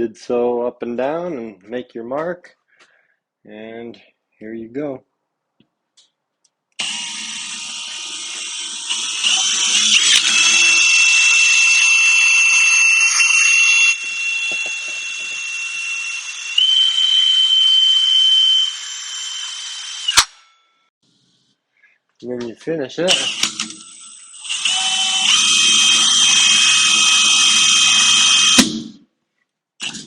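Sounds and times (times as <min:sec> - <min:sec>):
electric drill boring: 0:06.8 - 0:20.2, 0:23.1 - 0:28.7.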